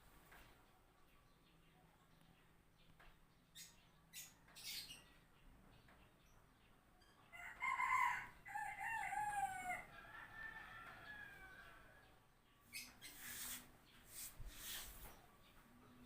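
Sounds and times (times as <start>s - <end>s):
short hissing noises: 13.0s - 15.2s.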